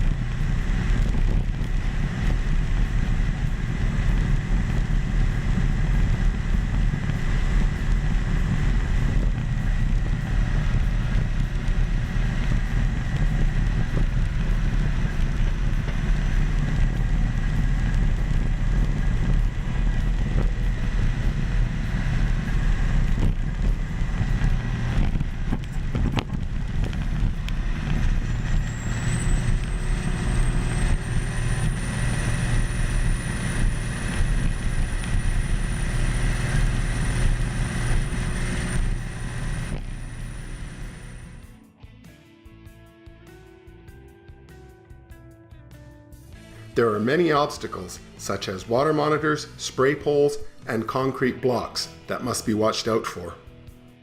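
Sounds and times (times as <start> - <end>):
bulldozer diesel engine rumbling: 0.0 - 41.5
faint high whine rising: 12.2 - 41.5.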